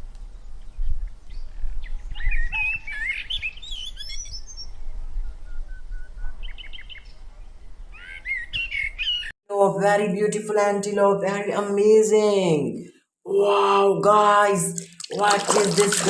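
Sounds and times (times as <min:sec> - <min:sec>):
small birds chirping: 0:00.8 - 0:04.7.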